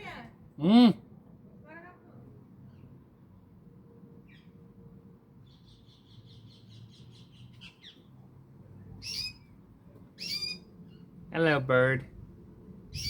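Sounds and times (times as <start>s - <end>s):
canary trilling: 9.0s - 9.6s, 10.2s - 11.0s.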